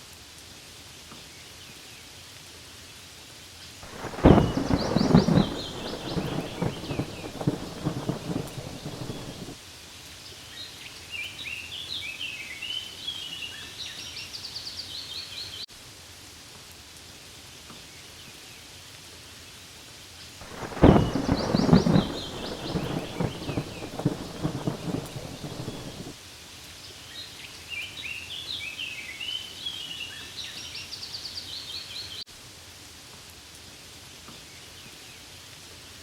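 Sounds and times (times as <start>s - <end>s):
rain falling: 0.0s - 14.2s, 14.9s - 36.0s
thunder rumbling: 3.8s - 9.6s, 20.4s - 26.2s
birds chirping: 3.9s - 9.5s, 20.5s - 26.1s.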